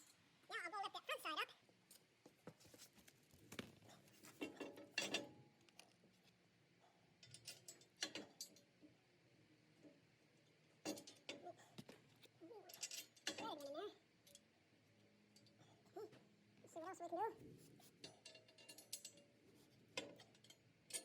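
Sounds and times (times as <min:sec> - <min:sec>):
metallic clinks of tools and bolts: 0:04.4 - 0:05.3, 0:07.2 - 0:08.7, 0:12.7 - 0:14.4, 0:18.0 - 0:19.4, 0:20.0 - 0:21.0.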